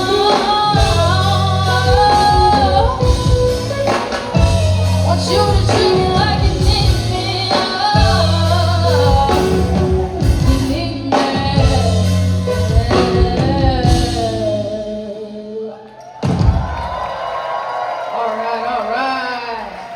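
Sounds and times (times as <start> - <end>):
live band with singer: 0.0 - 19.9.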